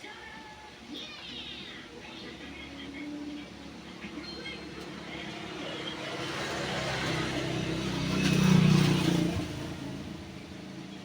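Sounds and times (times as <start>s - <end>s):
vehicle passing by: 4.6s - 11.0s.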